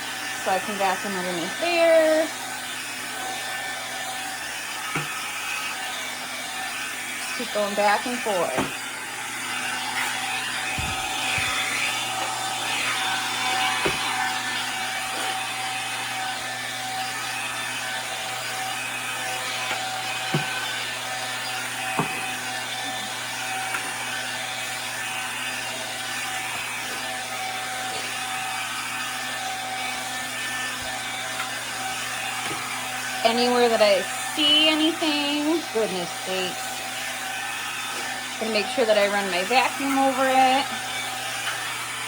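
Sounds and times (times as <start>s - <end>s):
cordless vacuum motor whine: 0.0s - 42.0s.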